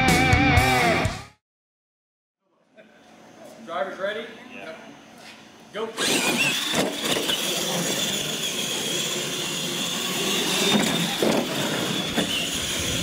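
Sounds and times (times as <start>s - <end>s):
electric motors whining: 4.6s - 13.0s.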